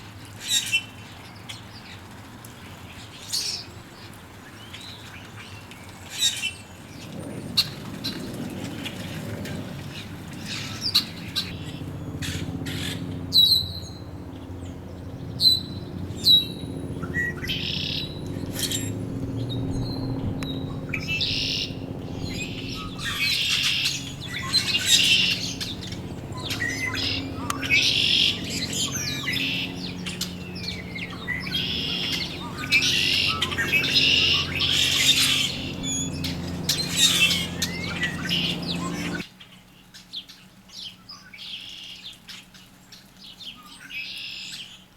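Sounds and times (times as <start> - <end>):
birds chattering: 10.4 - 39.2
low steady hum: 11.4 - 39.2.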